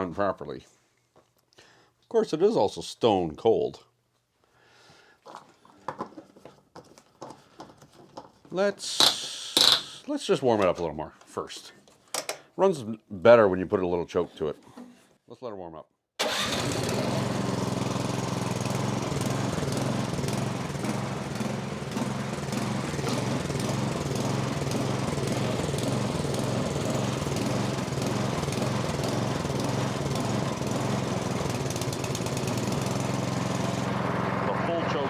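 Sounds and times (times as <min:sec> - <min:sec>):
small engine running: 0:16.2 - 0:35.0.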